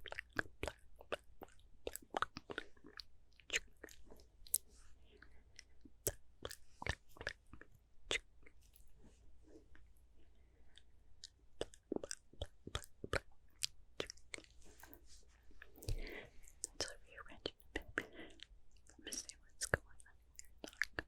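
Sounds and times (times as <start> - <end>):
lip and tongue clicks: 5.2 - 8.5, 10.7 - 14.6, 15.8 - 21.0.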